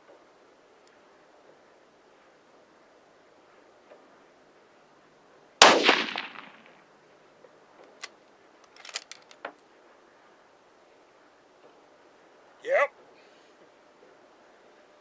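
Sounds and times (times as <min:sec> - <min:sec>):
rifle shot echoing: 0:05.6 - 0:06.8.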